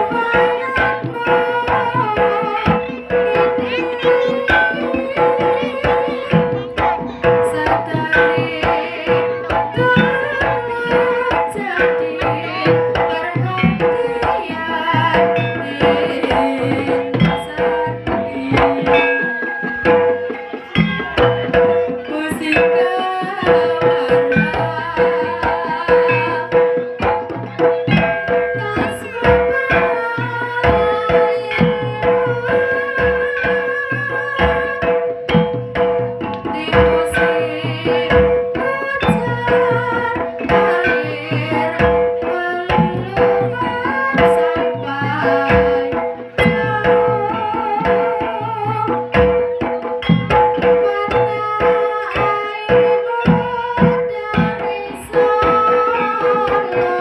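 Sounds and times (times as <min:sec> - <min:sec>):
hand drums busy rhythm: 0:00.0 - 0:57.0
wavering melody line: 0:00.0 - 0:57.0.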